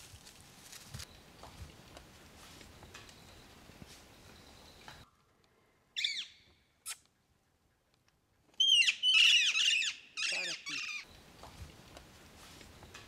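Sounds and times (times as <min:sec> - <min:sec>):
bird harsh squawks: 0:08.6 - 0:11.1.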